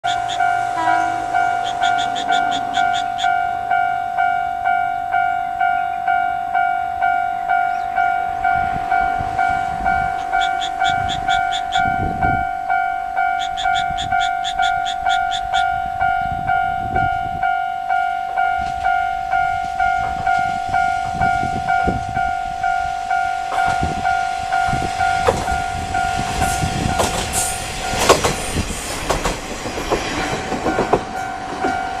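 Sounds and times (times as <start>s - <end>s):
level crossing bell ringing: 0.0s - 27.0s
diesel railcar passing: 0.0s - 32.0s
train wheels clattering over joints: 23.5s - 32.0s.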